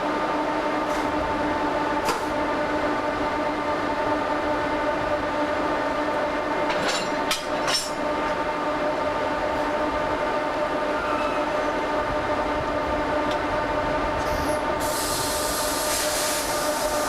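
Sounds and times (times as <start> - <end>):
locomotive humming: 0.0 - 17.0
short hissing bursts: 14.8 - 17.0.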